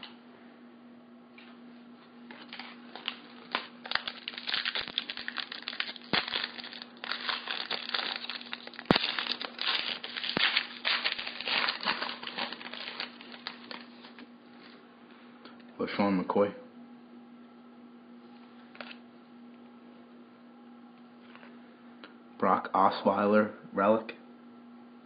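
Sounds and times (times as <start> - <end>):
foil wrapper tearing and crinkling: 2.3 - 14.3.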